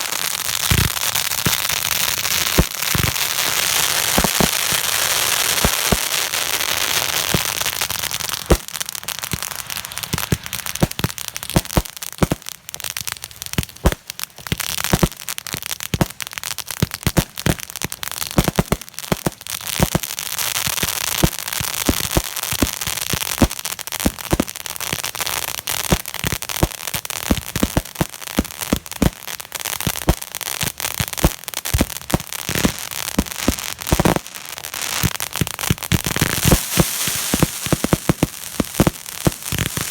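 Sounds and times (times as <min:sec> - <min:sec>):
fireworks crackling and popping: 0:00.0 - 0:39.9
steady hiss: 0:35.9 - 0:39.9.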